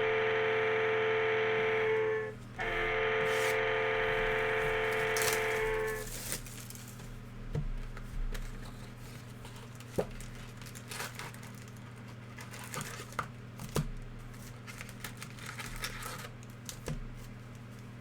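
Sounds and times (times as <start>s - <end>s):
low electrical hum: 0.0s - 18.0s
foil wrappers crinkling and tearing: 3.3s - 7.2s, 7.8s - 17.9s.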